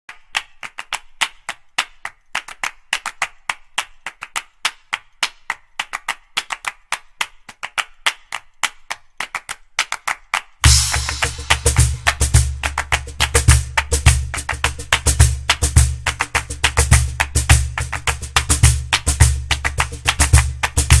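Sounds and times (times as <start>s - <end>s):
music with heavy drum beat: 10.6s - 21.0s.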